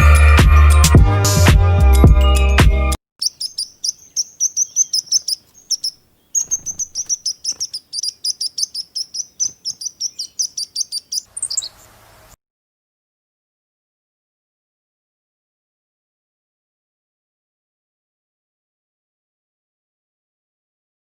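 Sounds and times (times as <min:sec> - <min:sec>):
small bird chirping: 0:03.2 - 0:12.2.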